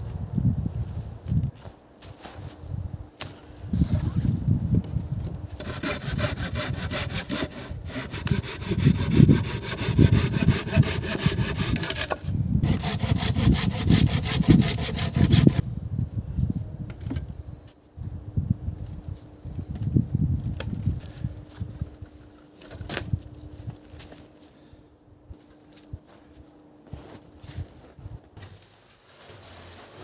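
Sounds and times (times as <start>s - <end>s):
hand saw cutting wood: 5.6s - 15.6s.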